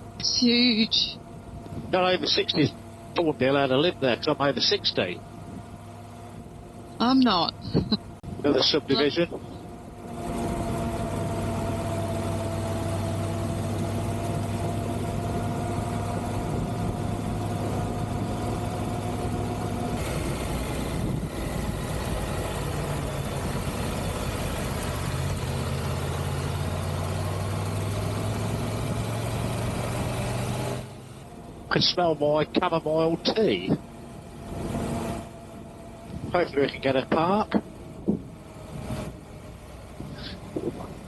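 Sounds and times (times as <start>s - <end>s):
motorcycle engine running: 9.3s - 41.0s.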